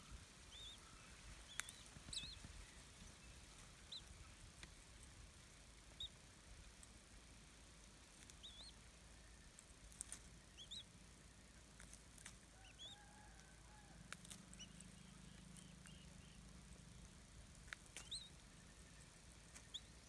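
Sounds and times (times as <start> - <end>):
faint high bird chirps: 0.0 - 4.4, 5.9 - 6.2, 8.2 - 11.6, 12.5 - 16.8, 17.5 - 20.0.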